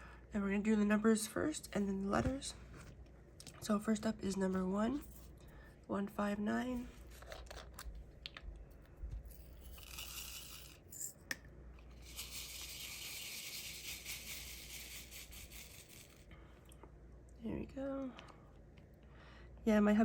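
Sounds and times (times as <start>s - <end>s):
resin beads rattling in plastic tray: 12.0s - 16.2s.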